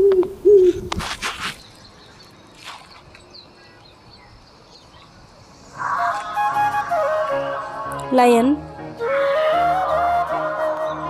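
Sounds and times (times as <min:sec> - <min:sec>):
brief rustles: 0:00.9 - 0:01.8
faint bird chirps: 0:01.6 - 0:08.5.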